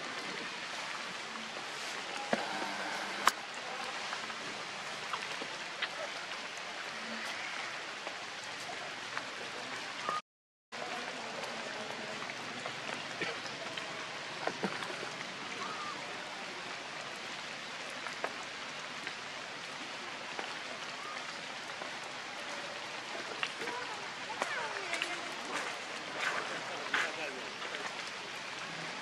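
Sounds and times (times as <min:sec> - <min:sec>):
rain on rocks and leaves: 0:00.0 - 0:29.0.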